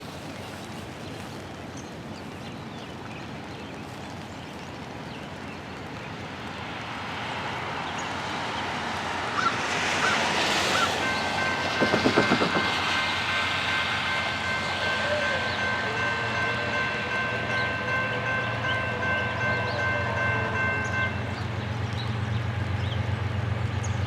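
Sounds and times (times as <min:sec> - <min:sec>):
diesel locomotive rumble: 0:10.0 - 0:24.0
rhythmic thumps: 0:11.0 - 0:15.0
train horn chord: 0:11.0 - 0:21.6.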